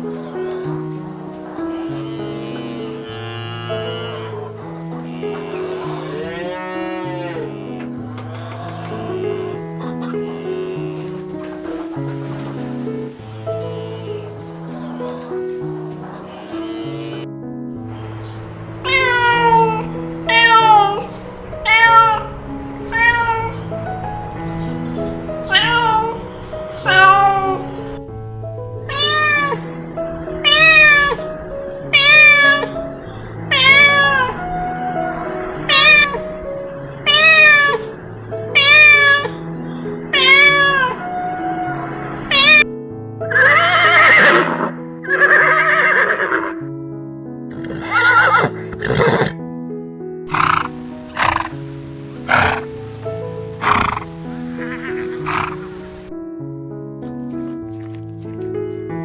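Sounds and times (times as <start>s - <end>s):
background music with held notes: 0.0s - 59.0s
cat meowing: 1.6s - 4.4s, 5.0s - 11.1s, 13.6s - 14.2s, 16.2s - 17.2s, 18.8s - 23.7s, 25.4s - 28.0s, 28.9s - 42.7s, 47.7s - 49.2s
horse whinnying: 1.7s - 11.2s, 18.8s - 22.3s, 22.9s - 23.6s, 25.5s - 26.2s, 26.8s - 27.8s, 28.9s - 29.7s, 30.4s - 31.2s, 31.9s - 32.8s, 33.4s - 36.2s, 37.0s - 37.9s, 38.6s - 39.4s, 40.1s - 42.7s, 43.3s - 46.6s, 47.5s - 49.4s, 52.3s - 52.6s.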